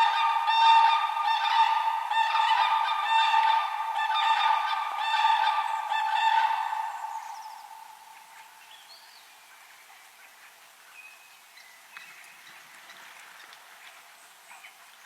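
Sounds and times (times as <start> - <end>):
large bird sustained call: 0.0 - 8.2.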